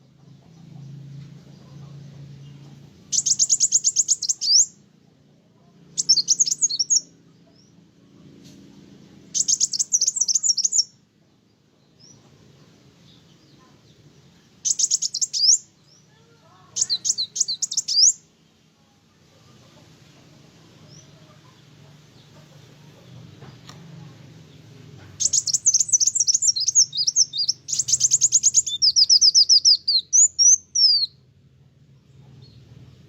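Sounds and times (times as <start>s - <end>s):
faint low hum: 0.0s - 33.0s
sunbird high trilling chatter: 14.6s - 18.2s, 25.1s - 31.1s.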